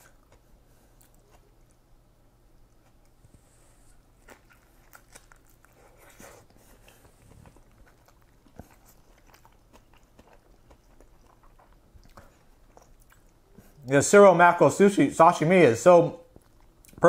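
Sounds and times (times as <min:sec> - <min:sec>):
person chewing spring roll: 0:00.0 - 0:03.3, 0:03.9 - 0:13.9, 0:16.3 - 0:17.0.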